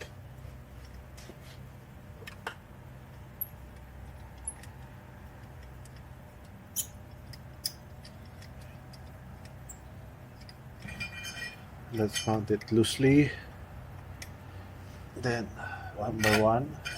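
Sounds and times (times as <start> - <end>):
steady low hum: 0.0 - 16.9
light metallic clicks of bolts: 3.4 - 13.3, 13.9 - 14.4, 16.0 - 16.9.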